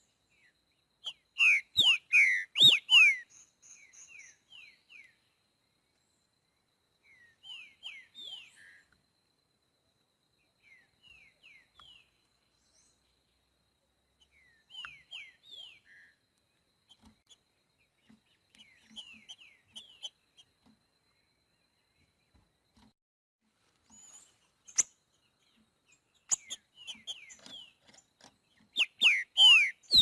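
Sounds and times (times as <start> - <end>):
bird singing whistled notes: 0.0 - 5.2, 7.0 - 9.0, 14.2 - 16.2, 26.1 - 27.8, 28.7 - 30.0.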